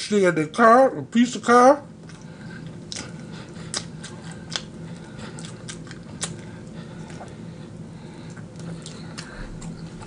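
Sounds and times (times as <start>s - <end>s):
steady low hum: 0.0s - 10.0s
crunchy chewing of fried chicken: 1.9s - 10.0s.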